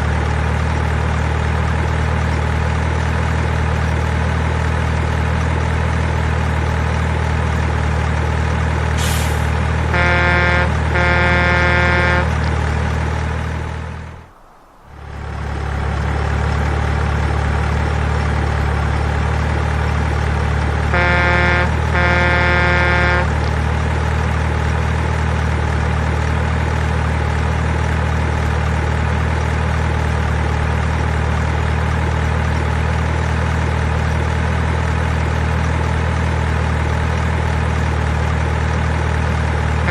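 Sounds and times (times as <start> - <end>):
horn toots: 9.0 - 15.3, 20.8 - 23.5
low engine drone: 9.0 - 36.4, 39.6 - 39.9.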